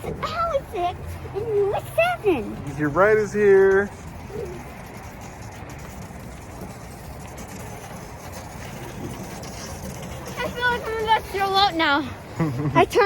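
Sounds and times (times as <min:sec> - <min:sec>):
snow tube sliding on snow: 0:06.2 - 0:13.0.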